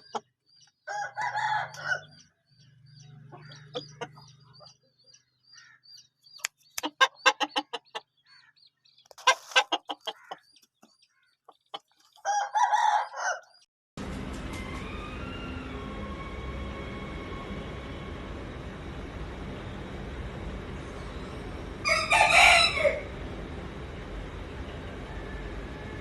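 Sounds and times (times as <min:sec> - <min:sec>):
roosters crowing: 0:00.8 - 0:02.2, 0:12.2 - 0:18.0, 0:21.8 - 0:23.3
chicken clucking: 0:03.3 - 0:04.8, 0:06.4 - 0:08.2, 0:09.0 - 0:13.6.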